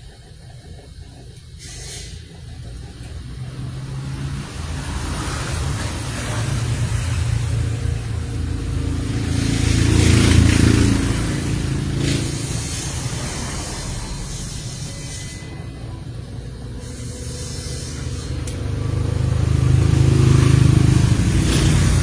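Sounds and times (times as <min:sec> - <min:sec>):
vehicle engine passing: 0:00.0 - 0:22.0.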